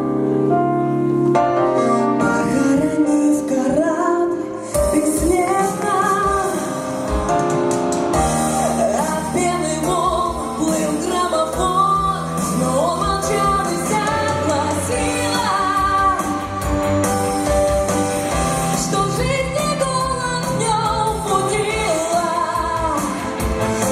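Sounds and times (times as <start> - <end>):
instrumental accompaniment: 0.0 - 23.9
woman singing: 2.2 - 7.0, 8.5 - 16.8, 18.7 - 23.9.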